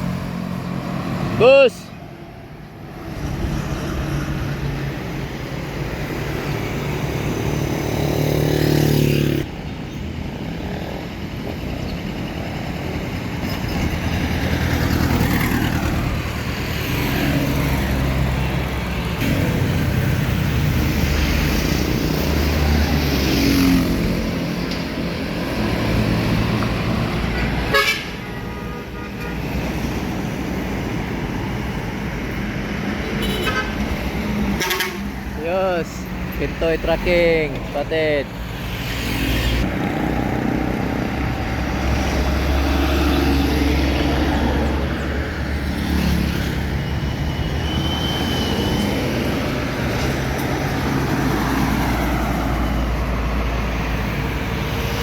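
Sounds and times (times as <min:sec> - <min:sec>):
heavy vehicles passing: 0:00.0 - 0:55.0
vehicle horn tooting: 0:27.7 - 0:29.5, 0:33.2 - 0:33.8, 0:34.6 - 0:35.1.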